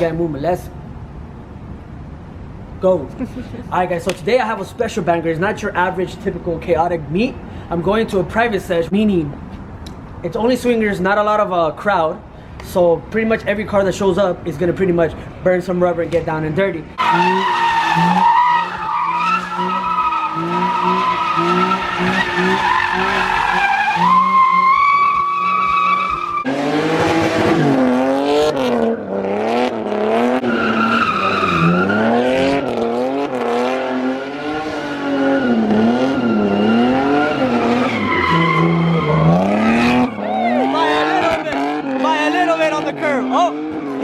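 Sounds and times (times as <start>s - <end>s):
tyres squealing: 17.0s - 26.5s, 30.4s - 32.8s, 35.0s - 44.0s
car engine revving: 17.0s - 44.0s.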